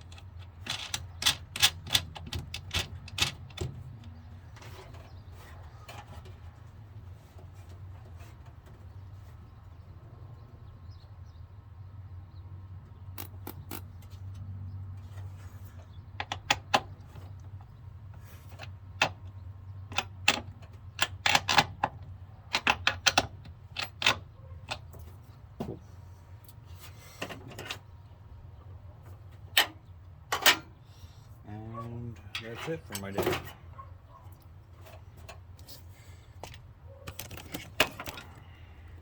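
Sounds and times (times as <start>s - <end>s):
hand tools clicking and clinking: 0.0s - 4.2s.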